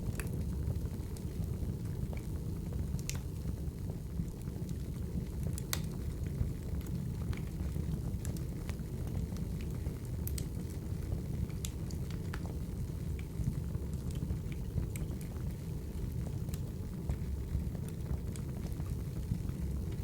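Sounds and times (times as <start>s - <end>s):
crackling wood fire: 0.0s - 20.0s.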